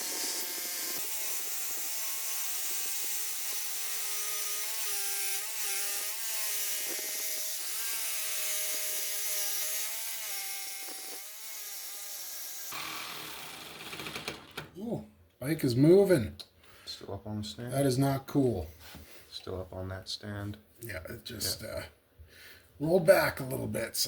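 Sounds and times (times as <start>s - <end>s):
power saw cutting steel: 0.0s - 14.6s.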